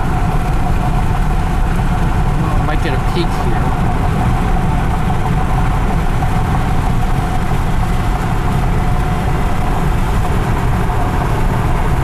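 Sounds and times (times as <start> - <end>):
car engine and tyre drone: 0.0 - 12.0.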